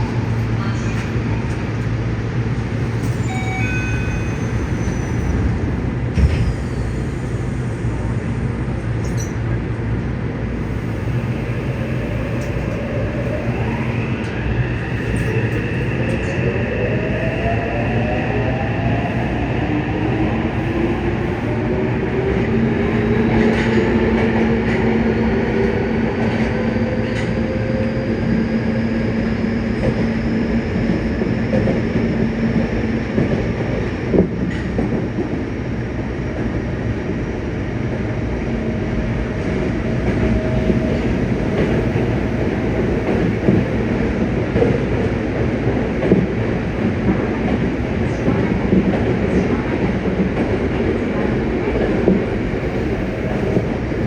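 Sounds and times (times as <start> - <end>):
rail joint clicks: 8.7 - 10.1, 33.2 - 35.4, 39.3 - 53.8.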